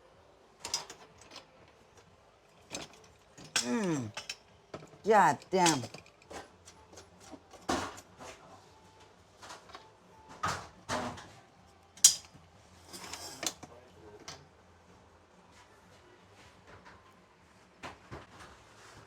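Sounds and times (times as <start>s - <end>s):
parts knocking and clacking: 2.7s - 6.2s.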